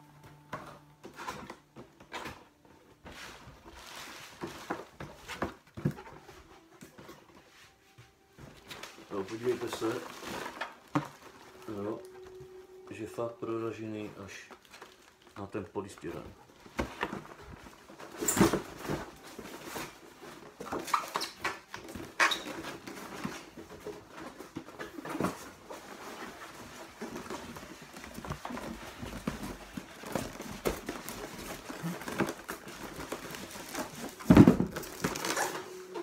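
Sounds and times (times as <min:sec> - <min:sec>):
cardboard box being handled: 0:16.0 - 0:36.0.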